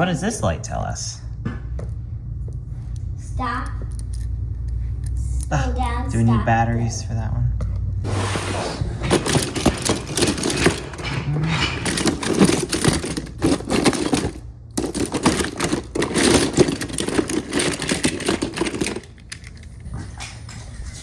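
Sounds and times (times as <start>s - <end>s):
wooden toy pieces clattering: 9.0s - 19.8s.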